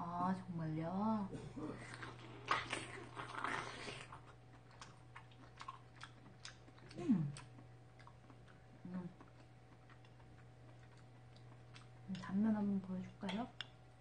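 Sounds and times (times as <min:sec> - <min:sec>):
person chewing food: 0:01.6 - 0:12.4.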